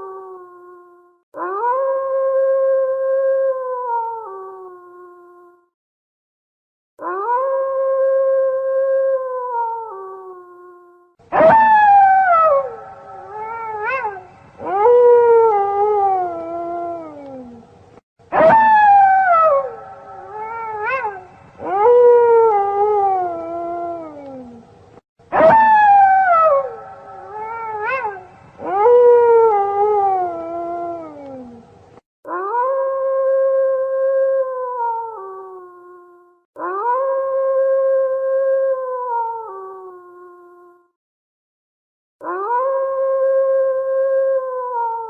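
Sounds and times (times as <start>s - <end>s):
wolves howling: 11.3s - 17.6s, 18.3s - 24.6s, 25.3s - 31.6s.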